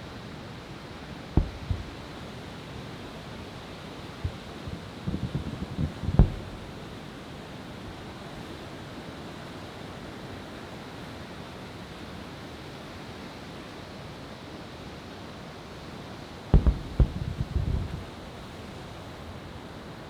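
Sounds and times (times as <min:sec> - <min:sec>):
firework bang: 0:01.4 - 0:02.4, 0:04.2 - 0:07.1, 0:16.6 - 0:18.1.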